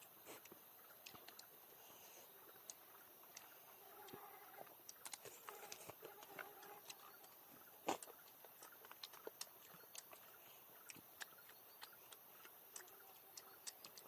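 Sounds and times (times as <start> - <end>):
small clicks and pops: 4.8 - 10.2.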